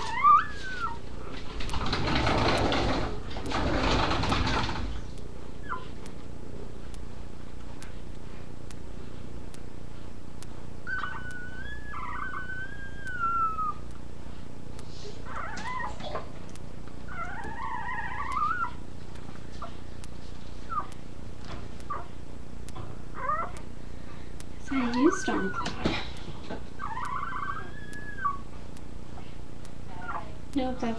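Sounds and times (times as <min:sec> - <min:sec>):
puppies whining: 0:00.0 - 0:01.3, 0:05.0 - 0:06.1, 0:10.8 - 0:13.9, 0:14.8 - 0:18.9, 0:20.6 - 0:21.0, 0:21.8 - 0:22.2, 0:22.9 - 0:23.8, 0:24.6 - 0:28.7, 0:29.9 - 0:30.4.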